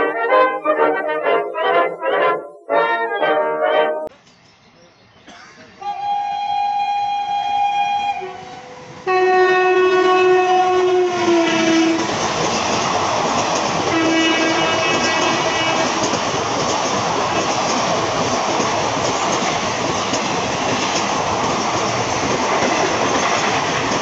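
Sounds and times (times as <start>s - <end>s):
locomotive horn blasts: 5.8s - 12.1s, 13.9s - 16.0s
train coaches rushing and rattling: 7.4s - 24.0s.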